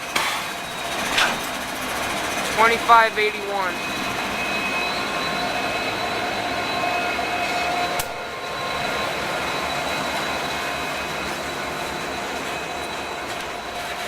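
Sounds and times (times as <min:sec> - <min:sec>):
freight train cars rumbling and rattling: 0:00.0 - 0:14.0
faint whines: 0:00.4 - 0:14.0.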